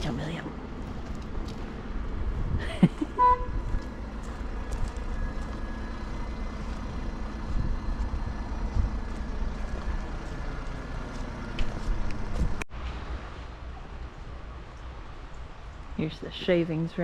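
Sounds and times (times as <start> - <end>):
heavy vehicle engine running: 0.0 - 12.6
horn toot: 3.2 - 3.6.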